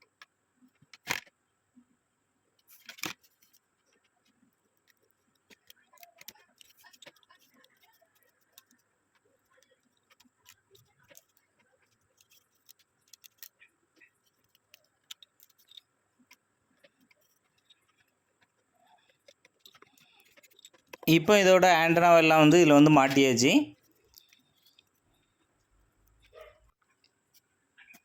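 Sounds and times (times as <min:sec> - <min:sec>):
plastic parts clicking and tapping: 0:02.6 - 0:21.1.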